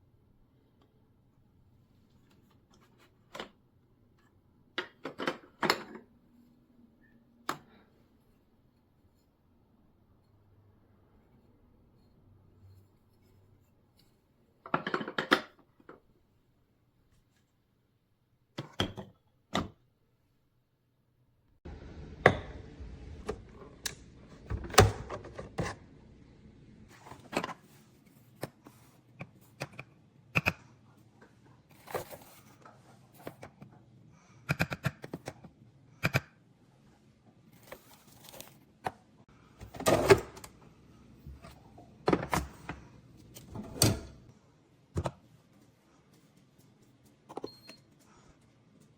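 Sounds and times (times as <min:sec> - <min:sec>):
objects being handled: 0:31.2 - 0:33.7, 0:37.5 - 0:39.0.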